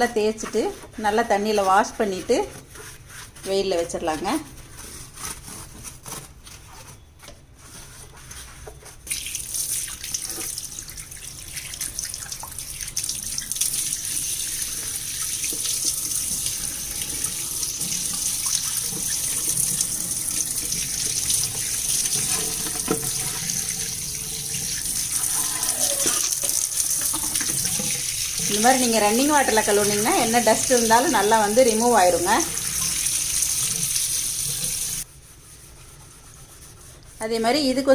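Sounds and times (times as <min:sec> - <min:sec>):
tap water splashing: 0:09.1 - 0:25.2, 0:26.1 - 0:28.6
rubbing and knocking: 0:14.8 - 0:32.3.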